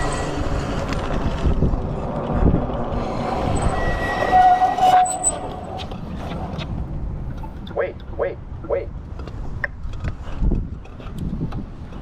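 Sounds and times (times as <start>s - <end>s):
high wheel squeal: 0.0s - 1.1s, 2.9s - 5.9s
electric dirt bike rumbling: 0.0s - 3.8s
wind noise: 0.0s - 12.0s.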